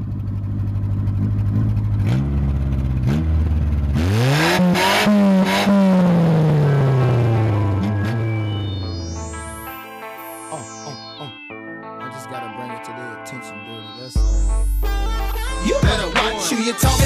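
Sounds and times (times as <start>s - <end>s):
car engine idling and revving: 0.0s - 9.5s.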